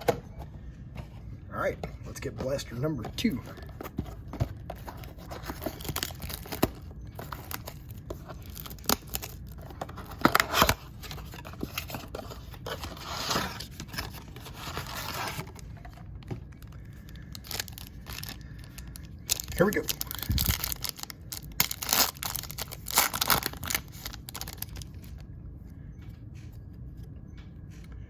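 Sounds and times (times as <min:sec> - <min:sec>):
packaging tearing and crinkling: 0:04.7 - 0:15.6, 0:16.9 - 0:25.0.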